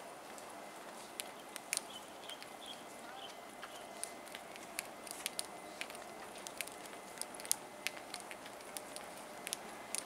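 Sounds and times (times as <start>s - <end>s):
faint steady hum: 0.0s - 10.0s
sharp clicks and ticks: 1.2s - 2.8s, 3.6s - 10.0s.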